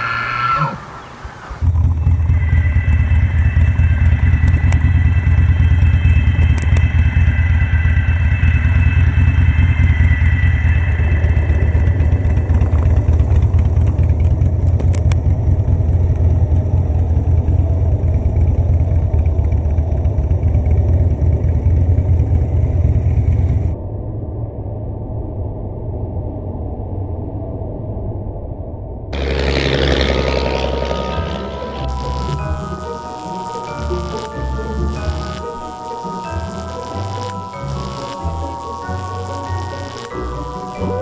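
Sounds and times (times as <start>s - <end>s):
faint high whine: 0.0s - 14.6s, 29.2s - 41.0s
motorcycle engine running: 1.2s - 23.8s, 29.2s - 41.0s.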